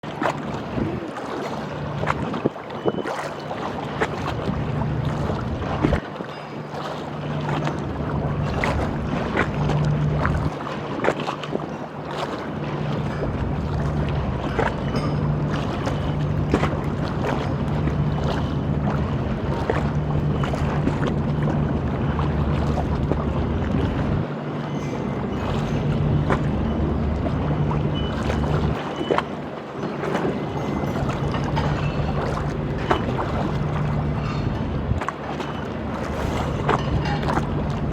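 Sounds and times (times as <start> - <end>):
boat engine humming: 0.0 - 37.9
water slapping and splashing: 0.0 - 37.9
wind: 0.0 - 37.9
wind noise: 0.5 - 1.2.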